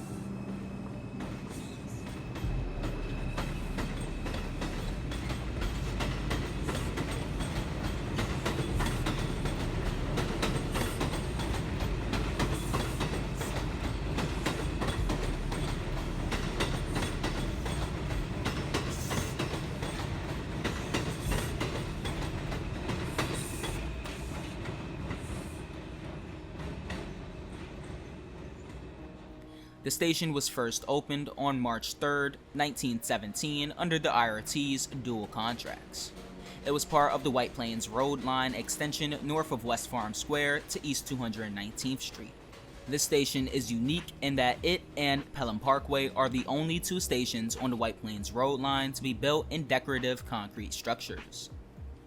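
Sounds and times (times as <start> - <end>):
train wheel squeal: 0.0 - 29.1
train wheels clattering over rail joints: 1.2 - 28.8.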